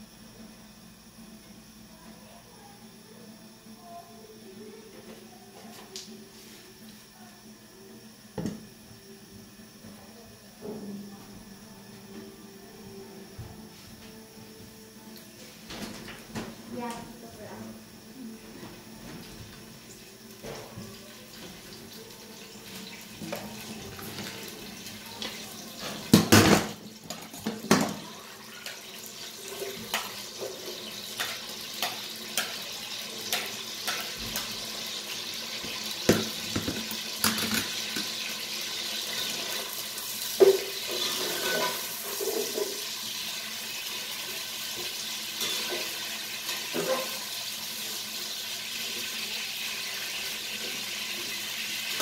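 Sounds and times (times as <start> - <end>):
food sizzling in hot oil: 19.6 - 52.0
loud clatters in a pot: 35.6 - 39.7, 40.3 - 43.0
metal spatula scraping a pot: 40.9 - 42.8.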